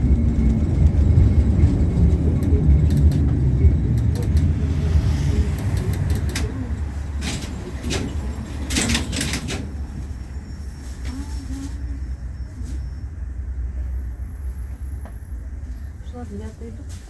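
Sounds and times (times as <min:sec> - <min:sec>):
tram rumble: 0:00.0 - 0:17.0
sharp clicks and rattles: 0:05.6 - 0:06.6.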